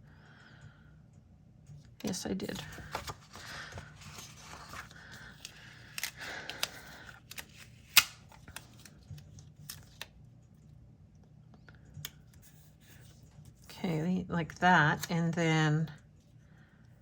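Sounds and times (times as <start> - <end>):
paper stickers rustling and scraping: 2.0 - 10.1.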